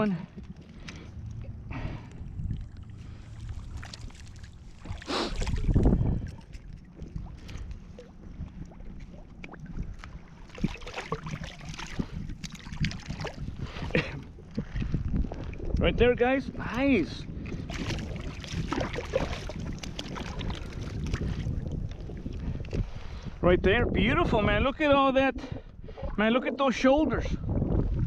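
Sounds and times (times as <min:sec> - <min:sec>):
wind buffeting microphone: 0:00.0 - 0:28.0
water sloshing around wading legs: 0:00.3 - 0:15.8, 0:17.3 - 0:23.1.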